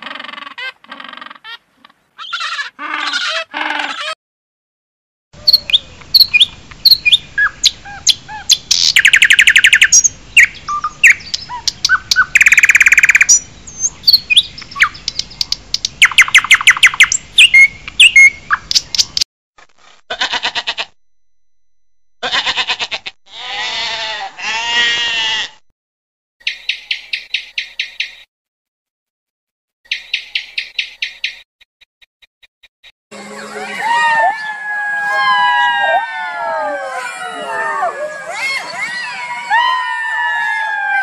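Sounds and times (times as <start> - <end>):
bird call rising and falling: 5.4 - 19.2
songbirds chirping and whistling: 5.4 - 19.2, 26.4 - 28.3, 29.9 - 31.5.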